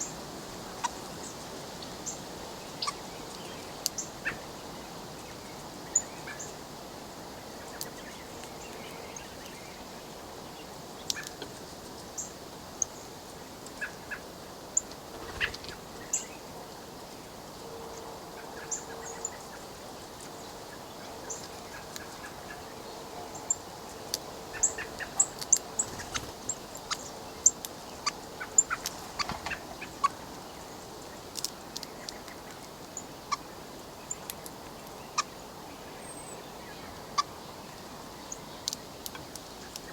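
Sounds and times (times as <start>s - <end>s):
beaks tapping seeds and plastic: 25.0s - 29.6s, 31.3s - 33.0s.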